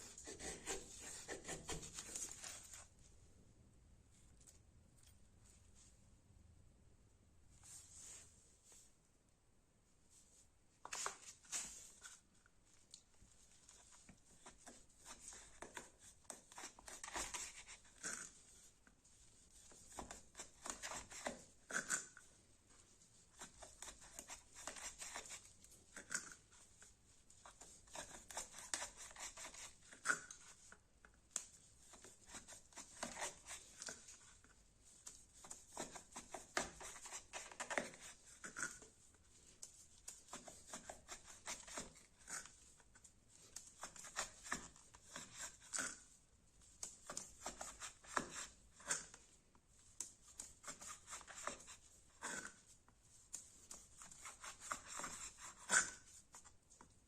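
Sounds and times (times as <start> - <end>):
knife cutting with scraping strokes: 0.0 - 2.8, 14.7 - 18.5, 27.5 - 30.6, 31.4 - 34.2, 35.0 - 42.7, 43.4 - 46.1, 50.0 - 52.7, 53.3 - 56.4.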